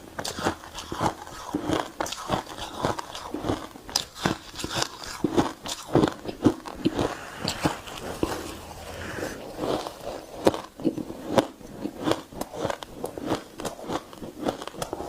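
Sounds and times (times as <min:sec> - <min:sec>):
chewing crunchy ice: 0:00.0 - 0:15.0.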